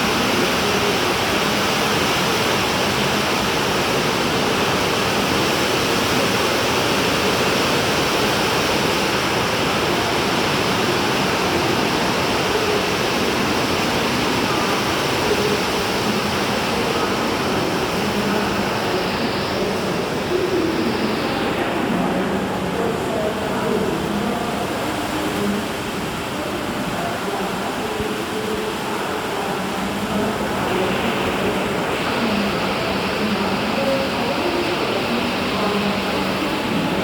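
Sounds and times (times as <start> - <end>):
busy railway station din: 0.0 - 37.0.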